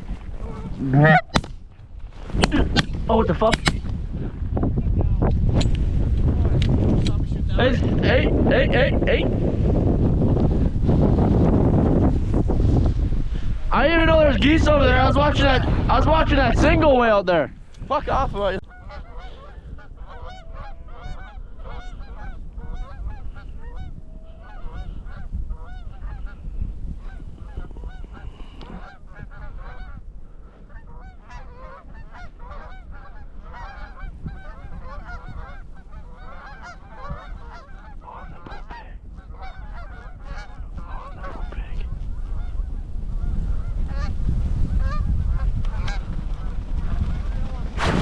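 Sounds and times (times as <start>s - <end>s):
wind buffeting microphone: 0.0s - 48.0s
geese honking: 0.4s - 1.5s, 18.6s - 26.4s, 27.0s - 30.0s, 30.7s - 44.2s, 44.8s - 47.7s.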